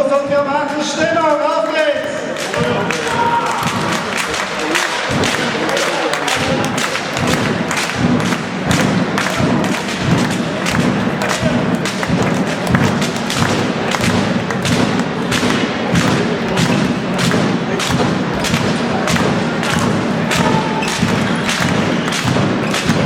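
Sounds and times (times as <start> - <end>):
crowd noise in a sports hall: 0.0 - 23.0
fans banging in rhythm: 0.0 - 23.0.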